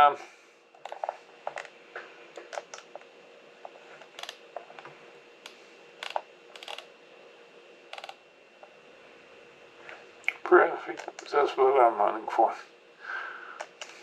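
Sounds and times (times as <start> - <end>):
faint steady hum: 0.0 - 14.0
mouse and keyboard clicks: 2.4 - 2.9, 6.0 - 6.9, 7.9 - 8.2.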